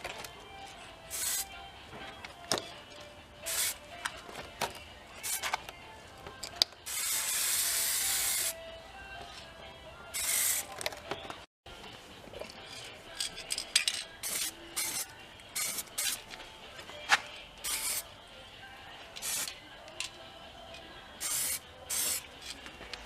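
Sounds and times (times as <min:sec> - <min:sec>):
spray paint can hissing: 0:01.1 - 0:01.5, 0:03.5 - 0:03.8, 0:06.9 - 0:08.6, 0:10.2 - 0:10.7, 0:14.2 - 0:16.2, 0:17.6 - 0:18.0, 0:19.2 - 0:19.5, 0:21.2 - 0:22.2.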